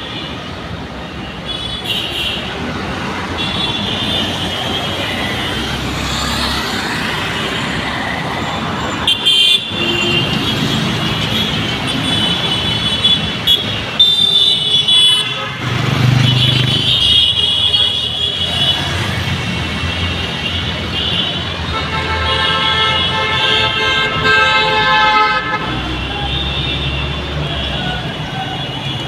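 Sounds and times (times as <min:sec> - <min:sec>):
road traffic rumble: 0:00.0 - 0:29.0
vehicle horns honking: 0:01.2 - 0:02.6, 0:03.4 - 0:05.6, 0:08.9 - 0:19.0, 0:20.2 - 0:29.0.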